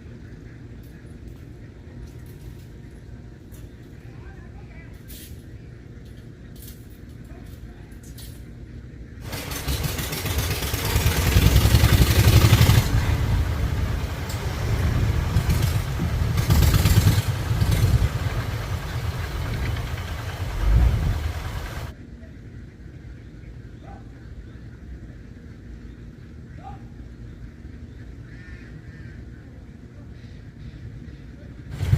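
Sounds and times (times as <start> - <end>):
engine throbbing: 9.2 - 21.9.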